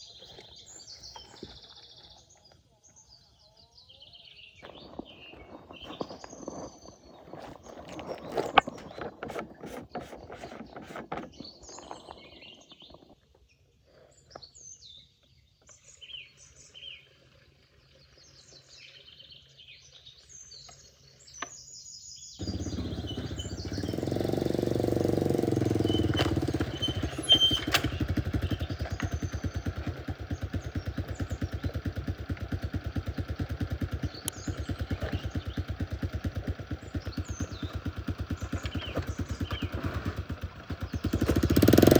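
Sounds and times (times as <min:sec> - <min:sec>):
birds chirping: 0:00.0 - 0:13.3, 0:15.6 - 0:41.9
motorcycle engine running: 0:22.4 - 0:41.9.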